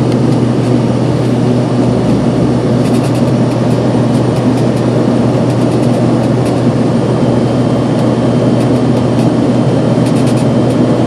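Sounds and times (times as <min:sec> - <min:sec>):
airflow noise: 0:00.0 - 0:10.6
airliner engine drone: 0:00.0 - 0:11.0.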